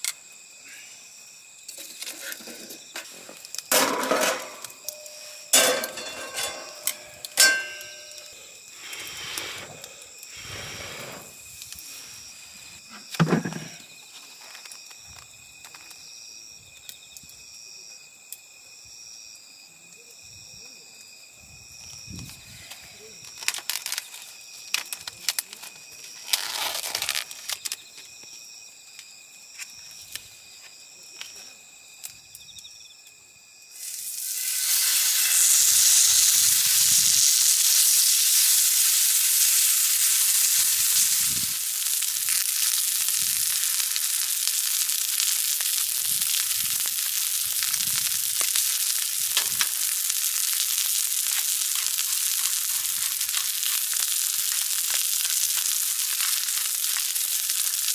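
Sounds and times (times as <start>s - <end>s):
crickets chirping: 0.0s - 57.9s
meat sizzling in a pan: 1.4s - 15.9s, 33.7s - 57.9s.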